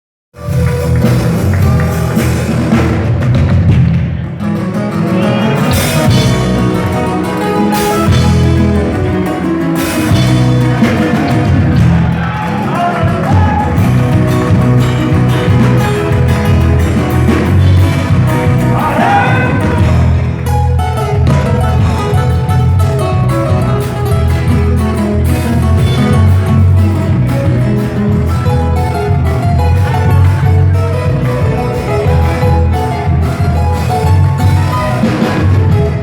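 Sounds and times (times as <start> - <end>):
guitars playing folk dance music: 0.4 - 36.0
person singing: 18.6 - 20.0.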